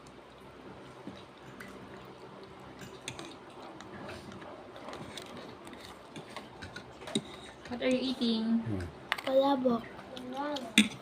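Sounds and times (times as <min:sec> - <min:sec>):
faint chewing: 0:00.0 - 0:08.0
low steady hum: 0:00.0 - 0:11.0.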